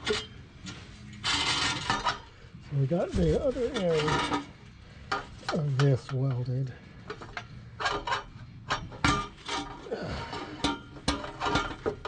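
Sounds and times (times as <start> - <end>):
metal pipe and clamp clanking: 0.0 - 2.4, 3.2 - 12.0
metal rattle: 0.0 - 6.4, 7.0 - 12.0.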